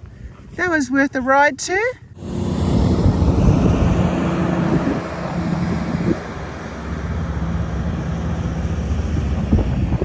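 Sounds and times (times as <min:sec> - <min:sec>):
wind noise on microphone: 0:02.0 - 0:10.0
vehicle engine humming: 0:02.2 - 0:10.0.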